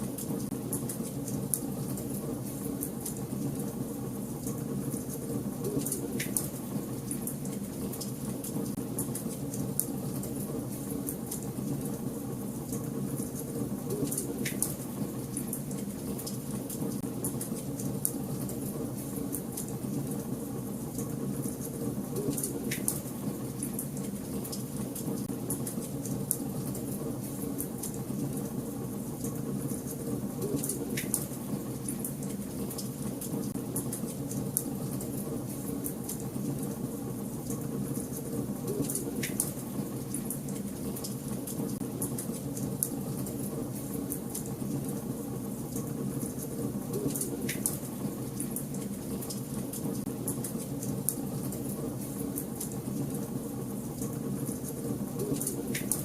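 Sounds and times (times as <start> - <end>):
fire crackles and pops: 29.2 - 36.7, 37.4 - 43.0, 45.7 - 53.2, 53.9 - 56.0.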